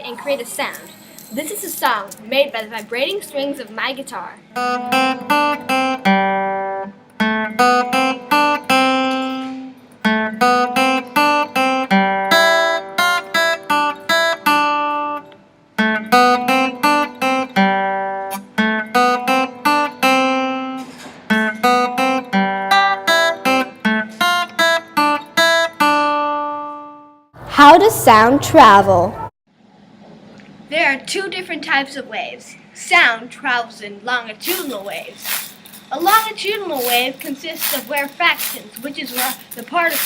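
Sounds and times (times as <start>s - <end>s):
acoustic guitar plucking: 4.5s - 29.3s.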